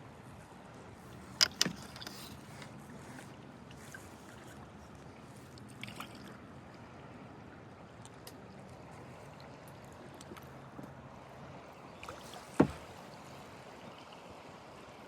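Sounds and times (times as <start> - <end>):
sharp knocks of kayak paddle: 12.5 - 12.9.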